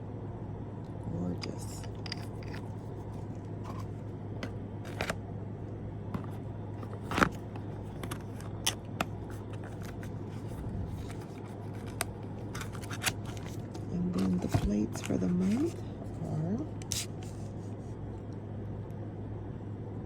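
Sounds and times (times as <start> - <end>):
steady low hum: 0.0 - 20.0
packaging rustling: 1.9 - 5.2, 6.2 - 15.9.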